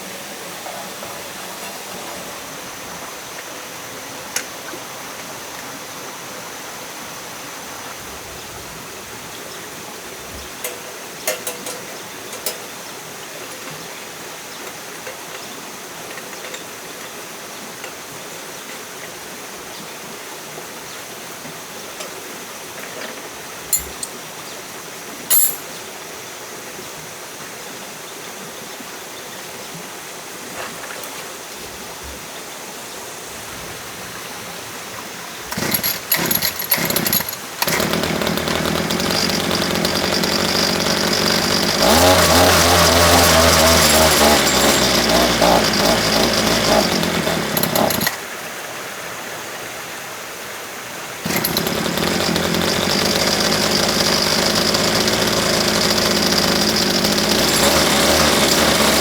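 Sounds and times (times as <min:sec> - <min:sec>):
small petrol engine running: 0:35.5 - 0:48.2, 0:51.2 - 0:59.0.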